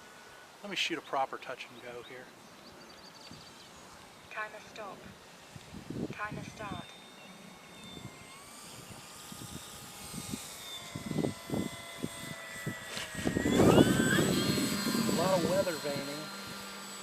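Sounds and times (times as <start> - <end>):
model airplane motor whining: 3.1 - 17.0
wind rumbling on microphone: 5.0 - 6.9, 7.8 - 16.6.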